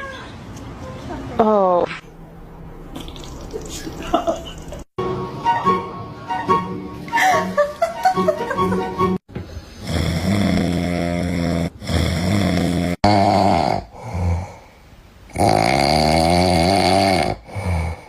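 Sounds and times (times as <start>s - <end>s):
animal snoring loudly: 9.8s - 14.7s, 15.3s - 18.0s.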